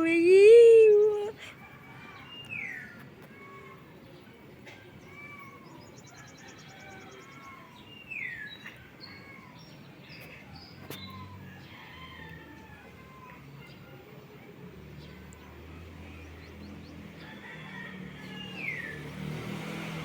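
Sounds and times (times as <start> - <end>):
birds chirping and whistling: 5.3 - 11.4.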